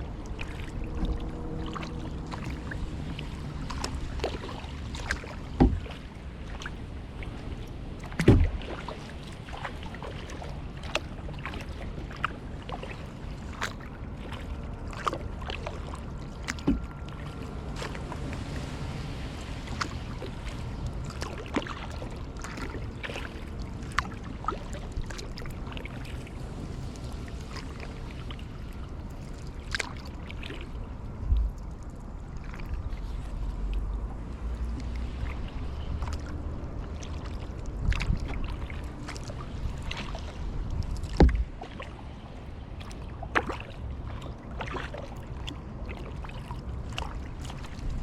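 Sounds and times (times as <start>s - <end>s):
low steady rumble: 0.0s - 48.0s
paddle splashing in water: 0.0s - 48.0s
dull thuds: 41.1s - 41.6s.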